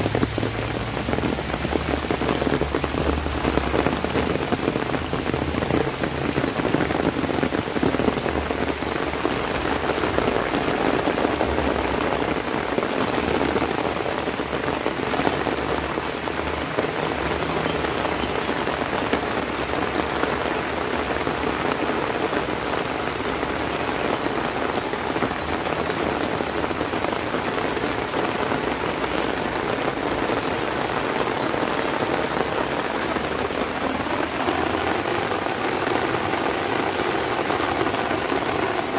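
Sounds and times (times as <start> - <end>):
heavy rain on an umbrella: 0.0 - 38.9.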